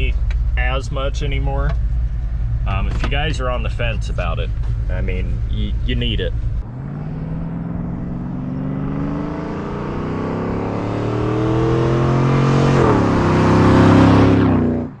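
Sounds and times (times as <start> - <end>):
engine accelerating at full throttle: 6.6 - 15.0.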